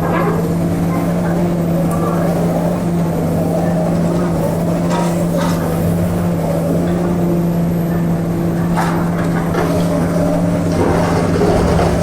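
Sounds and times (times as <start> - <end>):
heavy diesel machinery humming: 0.0 - 12.0
debris clattering: 8.4 - 12.0.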